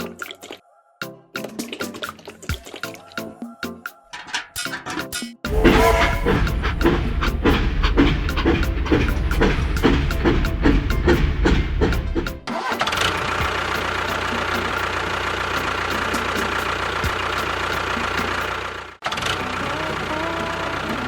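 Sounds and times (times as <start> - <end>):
rhythmic percussion music: 1.4 - 12.7
engine running: 5.5 - 12.4, 13.1 - 21.0.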